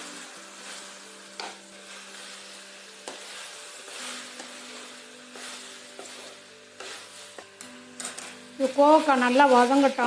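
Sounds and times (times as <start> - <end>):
vegetables sizzling in oil: 0.0 - 10.0
wooden spatula knocking on pan: 1.4 - 1.6.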